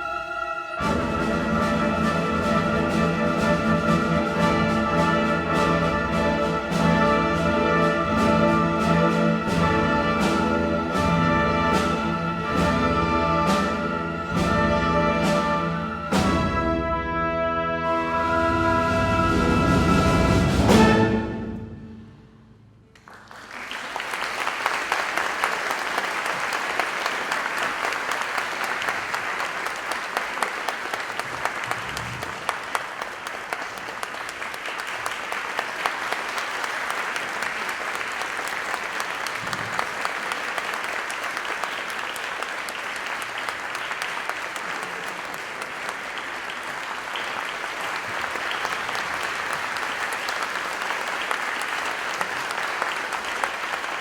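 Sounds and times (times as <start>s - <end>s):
audience applauding: 22.9s - 54.0s.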